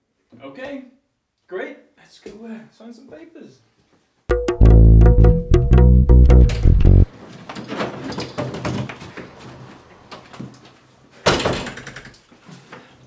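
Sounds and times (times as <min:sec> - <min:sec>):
plucked double bass music: 0:04.3 - 0:07.1.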